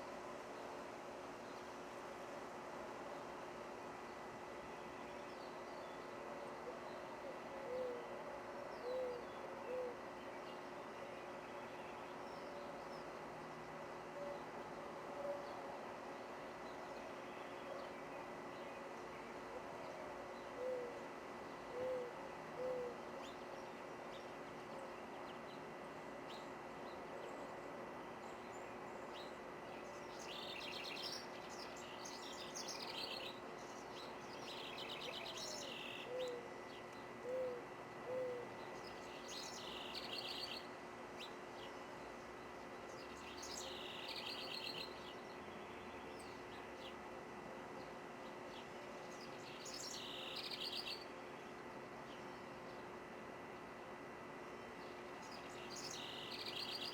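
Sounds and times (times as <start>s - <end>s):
low bird hooting: 6.6s - 8.1s, 8.8s - 10.0s, 20.6s - 21.0s, 21.7s - 23.0s, 35.0s - 36.6s, 37.2s - 38.6s.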